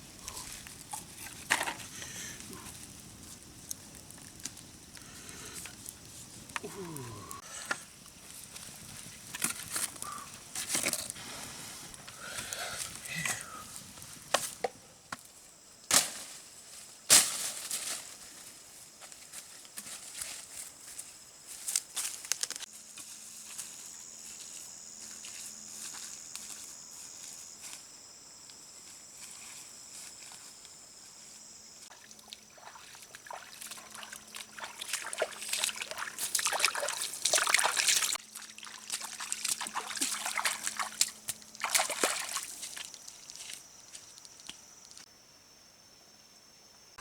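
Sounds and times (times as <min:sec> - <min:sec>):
water sloshing and trickling: 0:31.8 - 0:45.0.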